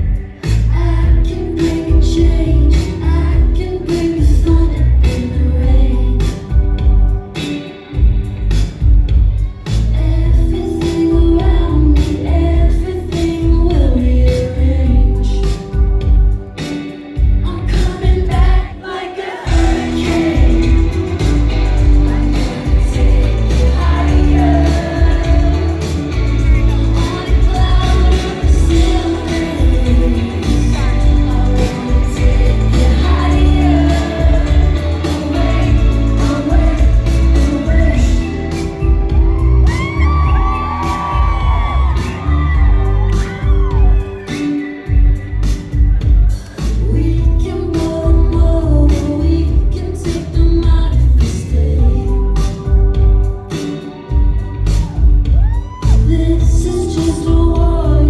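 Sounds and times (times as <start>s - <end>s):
woman singing: 0.0s - 7.2s, 9.6s - 16.7s, 17.3s - 58.0s
heavy bass line: 0.0s - 7.3s, 19.5s - 44.2s
electro-pop band playing live: 0.0s - 58.0s
steady drum beat: 19.5s - 47.4s, 49.5s - 58.0s.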